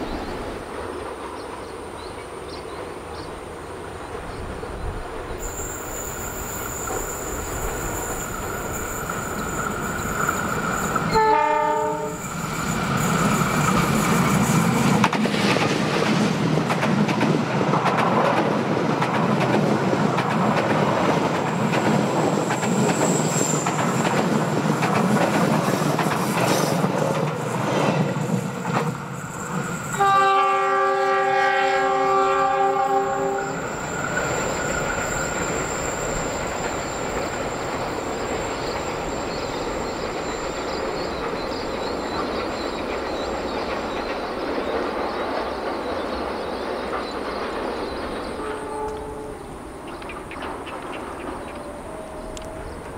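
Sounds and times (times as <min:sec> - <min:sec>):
train wheels running over rails: 0:00.0 - 0:52.9
train horn: 0:11.0 - 0:12.3, 0:29.9 - 0:33.8, 0:48.4 - 0:49.6.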